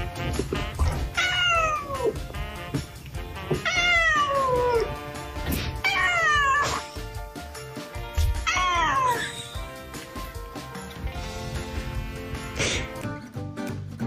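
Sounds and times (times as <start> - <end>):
background music: 0.0 - 14.0
cat meowing loudly: 1.2 - 2.2, 3.6 - 4.9, 5.8 - 6.8, 8.4 - 9.4.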